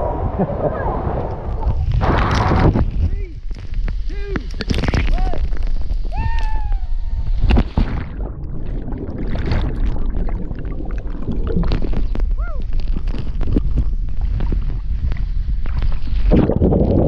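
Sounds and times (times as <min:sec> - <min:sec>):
person shouting: 0:06.1 - 0:07.2.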